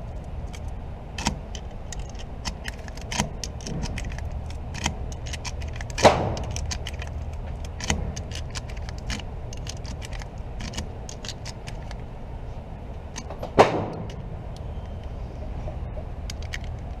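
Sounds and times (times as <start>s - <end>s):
metallic clicking and rattling: 0.0s - 12.0s, 13.0s - 15.2s, 16.0s - 17.0s
low rumble: 0.0s - 17.0s.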